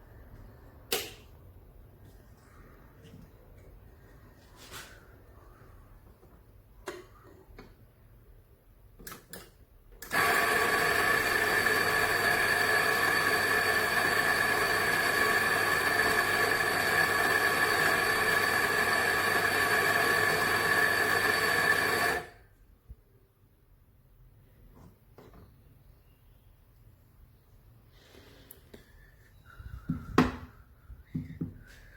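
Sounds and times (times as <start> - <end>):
coffee grinder running: 10.1 - 22.4.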